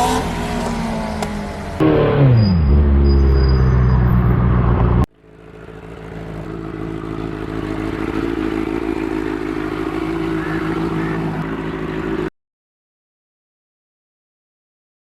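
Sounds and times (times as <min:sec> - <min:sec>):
quieter steady engine note: 0:04.8 - 0:12.3
motorcycle engine running loud: 0:05.2 - 0:12.3.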